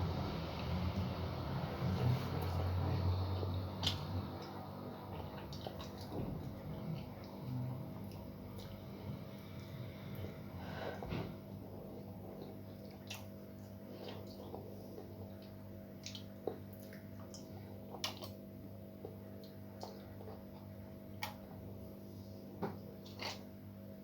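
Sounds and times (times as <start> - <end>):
low hum: 0.0 - 17.2.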